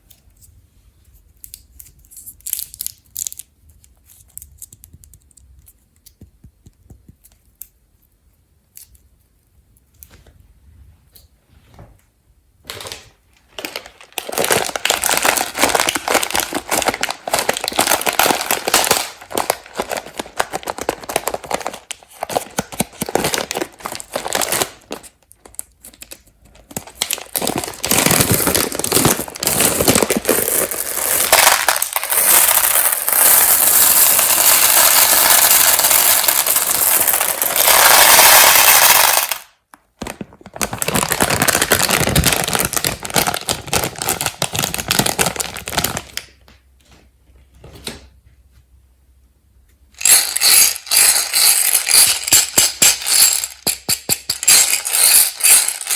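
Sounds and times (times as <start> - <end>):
candies rattling on hard surface: 13.5 - 26.0, 26.6 - 39.6, 40.6 - 46.1, 50.0 - 55.9.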